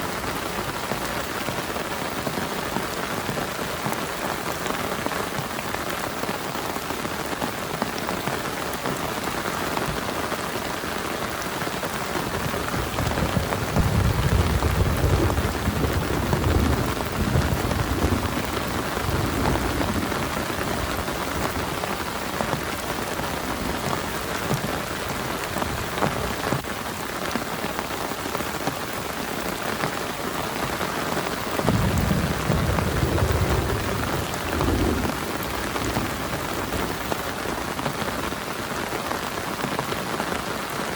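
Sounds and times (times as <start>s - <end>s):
heavy rain falling: 0.0s - 40.9s
thunder rumbling: 12.2s - 26.6s, 31.4s - 38.4s.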